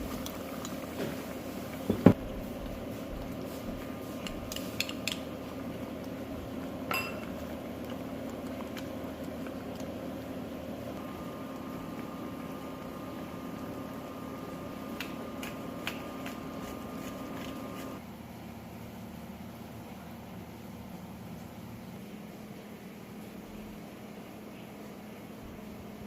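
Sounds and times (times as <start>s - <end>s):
steady machine hum: 0.0s - 26.0s
ringing clink: 6.9s - 7.2s
dishes and utensils tapping: 6.9s - 7.4s.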